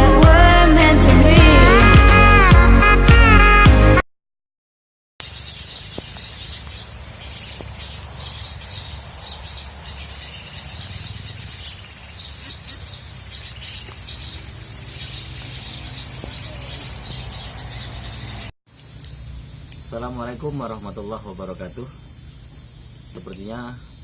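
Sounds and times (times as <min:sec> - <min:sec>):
small birds chirping: 0:05.2 - 0:18.5.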